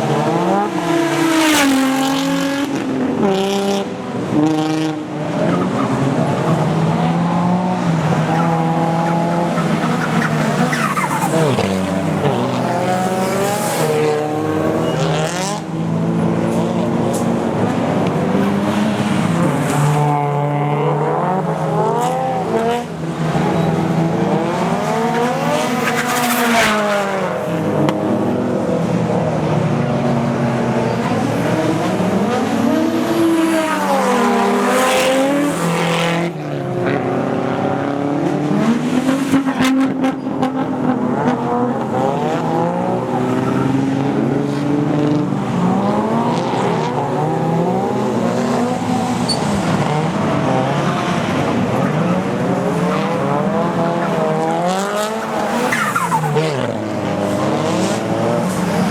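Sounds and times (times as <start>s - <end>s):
car engines revving hard: 0.0s - 58.9s
tyre squeal: 8.3s - 14.0s, 49.1s - 49.7s, 54.8s - 56.7s.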